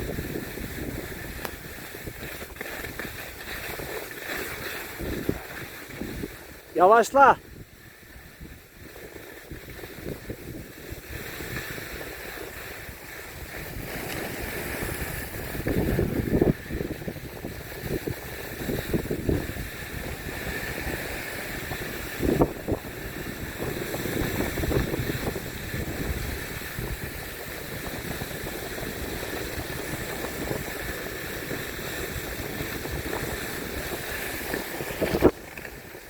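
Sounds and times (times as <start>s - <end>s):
wind buffeting microphone: 0.0s - 6.7s, 7.4s - 36.0s.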